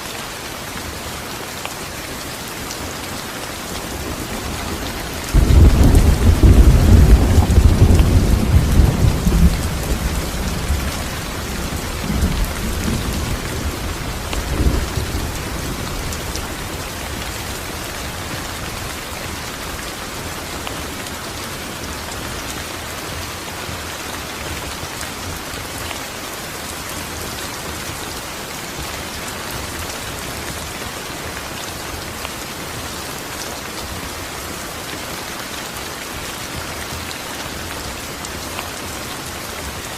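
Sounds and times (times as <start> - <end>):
steady rain falling: 0.0 - 39.9
rolling thunder: 4.8 - 16.7.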